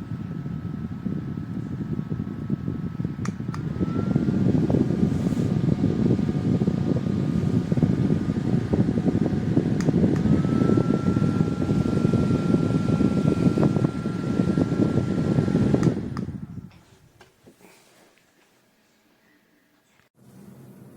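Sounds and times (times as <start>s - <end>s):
desk fan running: 0.0s - 17.3s
fan switch click: 3.2s - 4.0s, 9.2s - 16.7s.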